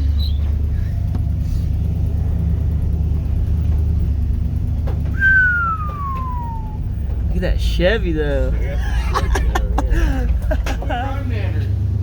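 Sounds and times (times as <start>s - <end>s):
pickup truck driving rumble: 0.0s - 12.0s
high whistle-like tone sliding down: 5.1s - 6.9s.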